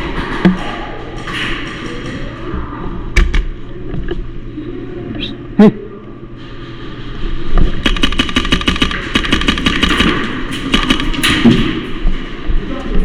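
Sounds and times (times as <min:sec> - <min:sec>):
airsoft guns firing in bursts: 0:07.8 - 0:11.8.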